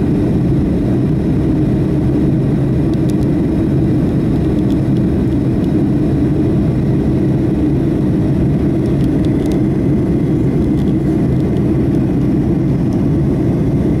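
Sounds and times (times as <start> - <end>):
jet engine rumble in cabin: 0.0 - 14.0.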